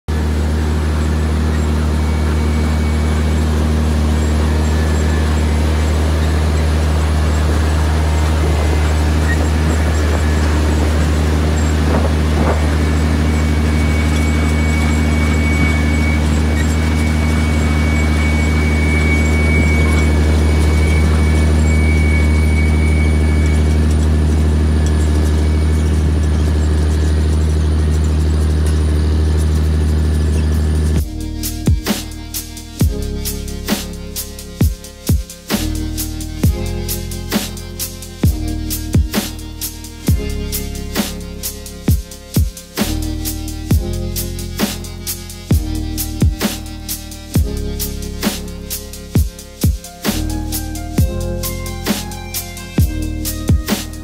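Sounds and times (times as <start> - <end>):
harvester engine humming: 0.0 - 54.0
faint high whine: 0.1 - 28.2.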